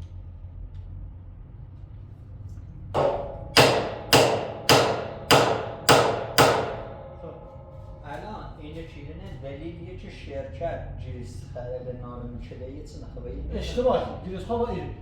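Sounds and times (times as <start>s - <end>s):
ringing hammer blows: 3.0s - 8.4s.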